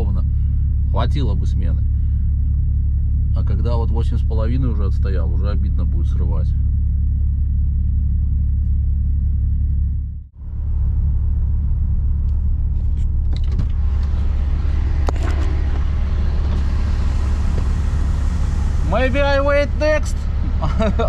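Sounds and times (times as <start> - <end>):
diesel truck engine idling: 0.0 - 21.0
outside noise: 0.0 - 21.0.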